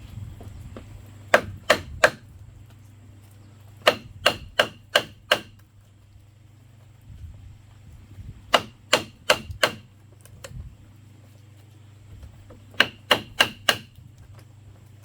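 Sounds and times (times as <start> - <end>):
hammer striking bamboo: 1.3 - 2.3, 3.8 - 5.6, 8.5 - 9.9, 12.7 - 14.0.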